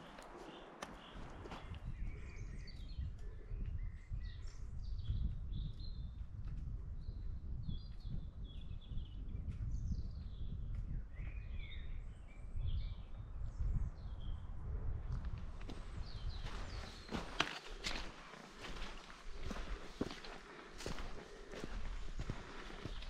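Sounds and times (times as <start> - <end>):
songbirds chirping and singing: 7.0 - 14.4, 15.7 - 23.0.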